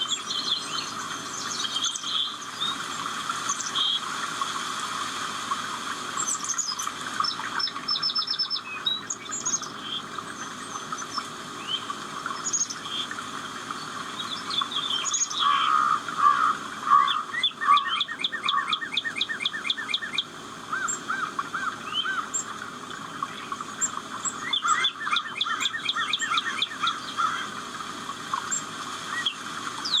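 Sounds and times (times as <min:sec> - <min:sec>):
birds chirping and singing: 0:13.8 - 0:22.5, 0:23.2 - 0:27.5, 0:28.3 - 0:30.0.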